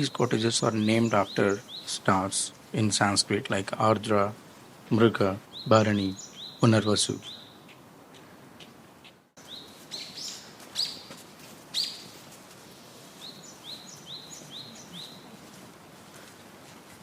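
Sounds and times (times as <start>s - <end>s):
birds chirping: 0.0s - 12.2s, 13.1s - 15.5s.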